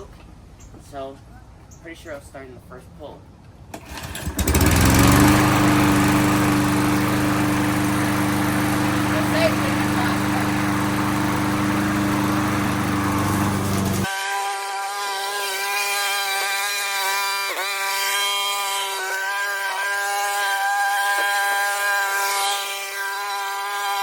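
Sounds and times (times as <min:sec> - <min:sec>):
lawn mower engine running: 0:03.7 - 0:14.1.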